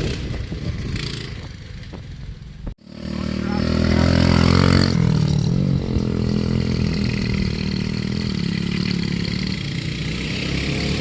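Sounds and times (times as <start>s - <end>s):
mini bike engine running: 2.9s - 11.0s.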